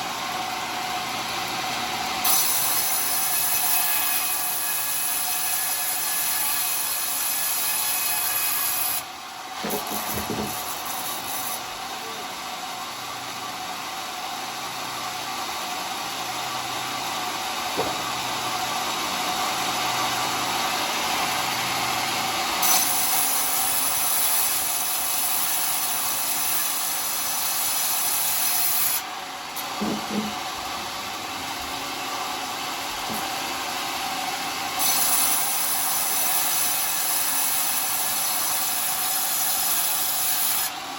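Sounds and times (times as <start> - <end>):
circular saw blade cutting log: 0.0 - 40.9
short knocks: 17.8 - 18.1.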